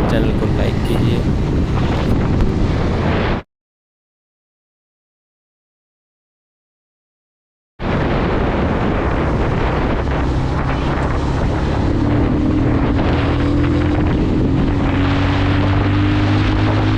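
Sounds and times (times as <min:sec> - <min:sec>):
wind noise on microphone: 0:00.0 - 0:03.4, 0:07.8 - 0:16.9
motorcycle engine running: 0:08.9 - 0:16.9.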